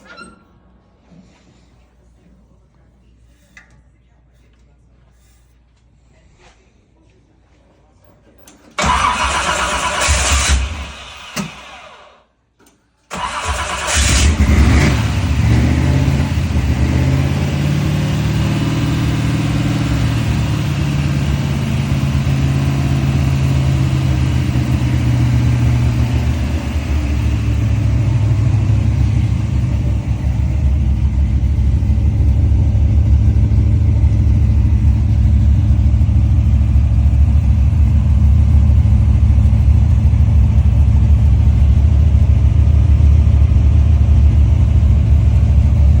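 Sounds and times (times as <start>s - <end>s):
car engine starting and idling: 8.6s - 12.3s, 13.0s - 46.0s.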